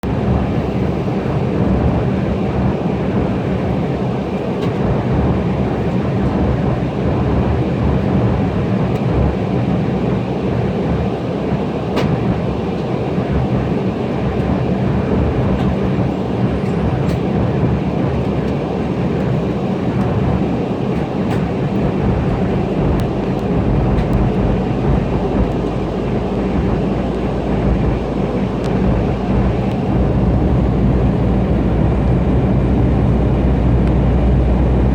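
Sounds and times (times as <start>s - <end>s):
airliner cabin rumble: 0.0s - 34.9s.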